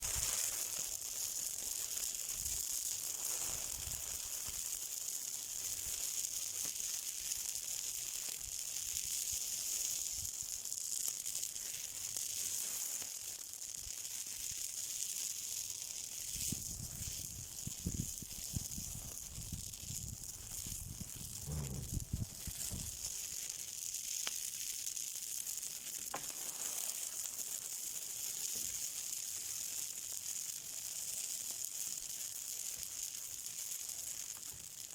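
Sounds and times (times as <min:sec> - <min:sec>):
fire hissing and crackling: 0:00.0 - 0:34.9
low rumbling bumps: 0:21.2 - 0:23.0.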